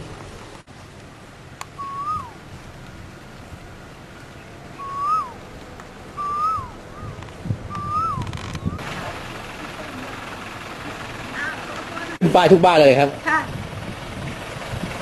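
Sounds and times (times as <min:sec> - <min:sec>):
bird whistled call: 0:01.8 - 0:02.4, 0:04.7 - 0:05.4, 0:06.1 - 0:08.8.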